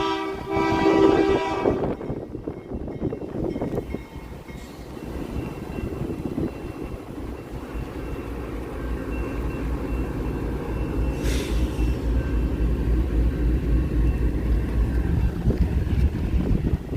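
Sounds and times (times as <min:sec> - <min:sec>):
train rumbling past: 0:00.0 - 0:16.9
brief hiss: 0:11.2 - 0:12.0.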